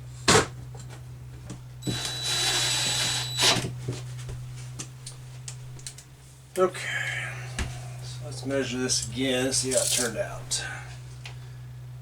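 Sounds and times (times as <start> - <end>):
power drill whining: 1.8 - 3.7.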